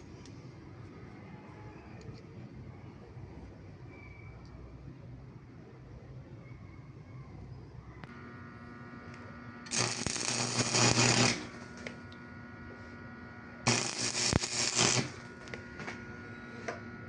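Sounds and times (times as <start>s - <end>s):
faint steady hum: 0.0s - 17.0s
small power tool running: 8.1s - 12.0s, 13.6s - 16.2s.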